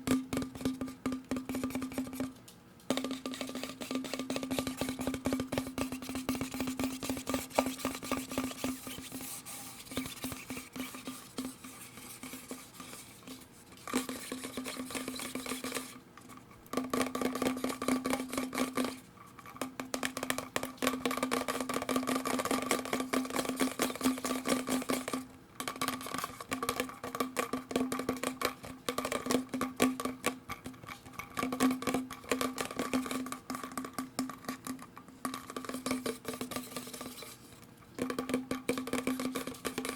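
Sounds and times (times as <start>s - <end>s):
tapping and clicking on plastic: 0.0s - 8.8s, 16.6s - 37.0s, 38.0s - 39.9s.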